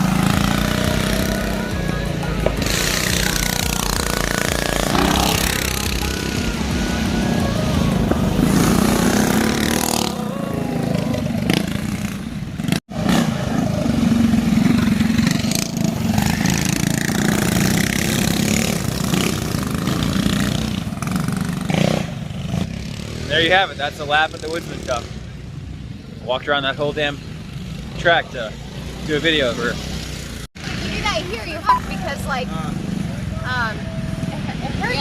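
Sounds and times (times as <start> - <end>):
motorcycle engine running: 0.0 - 25.6.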